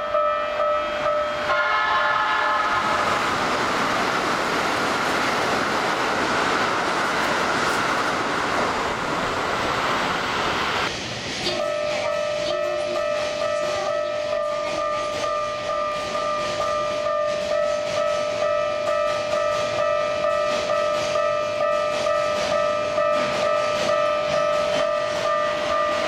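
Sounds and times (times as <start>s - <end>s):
two-pitch warning bell ringing: 0.0s - 1.8s, 11.6s - 26.0s
electric train rushing past: 0.0s - 26.0s.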